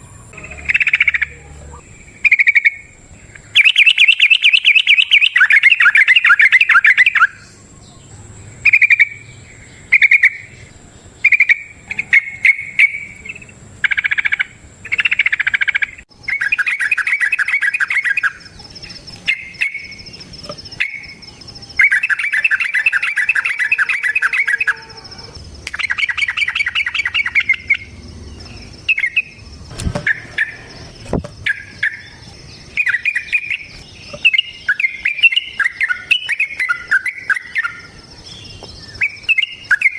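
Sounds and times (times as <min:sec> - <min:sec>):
bulbul singing bubbling chatter: 0:00.0 - 0:39.9.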